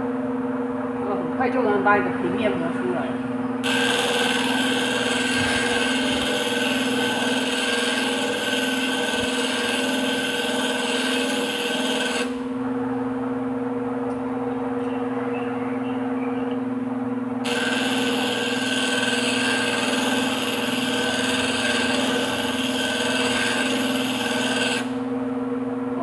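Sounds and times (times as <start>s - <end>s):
grinding wheel motor humming: 1.0s - 25.3s
blade grinding with rasping hiss: 3.6s - 12.5s, 17.4s - 25.1s.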